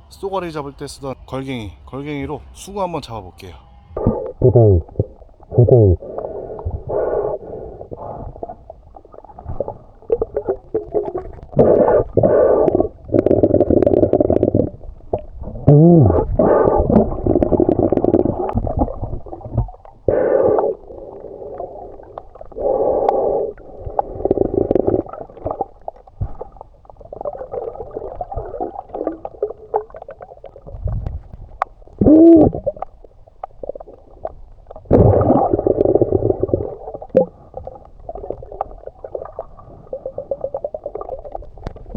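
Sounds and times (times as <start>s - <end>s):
muffled water sloshing: 4.0s - 41.9s
gliding bubbly tones: 7.9s - 31.2s, 33.6s - 41.9s.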